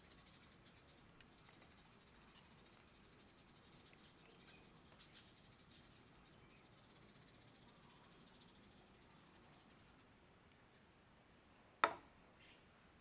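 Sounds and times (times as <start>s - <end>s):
faint high-pitched chirring: 0.0s - 10.1s.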